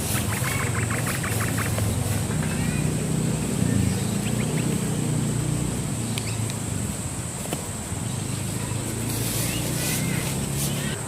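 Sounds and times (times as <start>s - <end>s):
insect drone: 0.0s - 11.0s
bird chirps: 3.5s - 5.1s, 6.0s - 6.5s, 8.0s - 11.0s.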